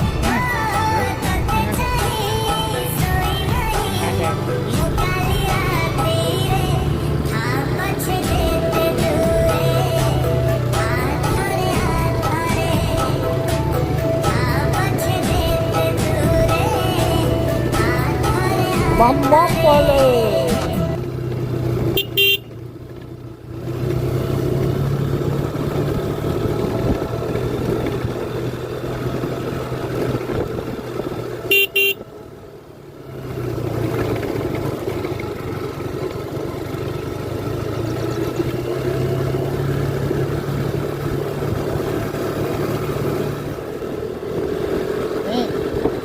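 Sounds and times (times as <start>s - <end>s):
engine running: 0.0s - 46.0s
horn toots: 21.9s - 22.6s, 31.5s - 32.0s.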